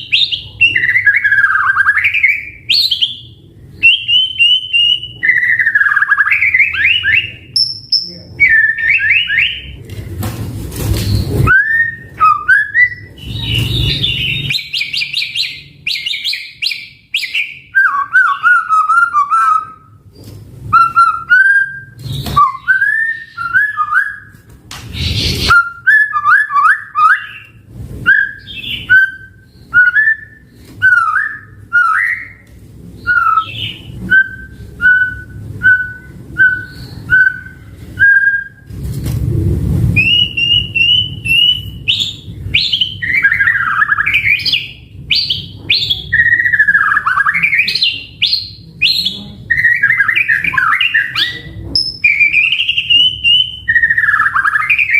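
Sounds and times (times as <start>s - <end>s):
songbird singing: 0.0s - 9.8s, 11.1s - 20.0s, 33.0s - 38.6s, 40.0s - 54.9s.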